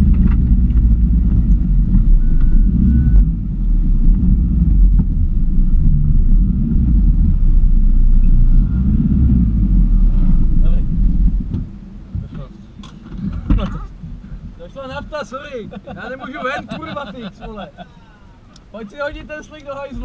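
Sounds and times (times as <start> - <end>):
diesel engine droning at low revs: 0.0 - 14.6.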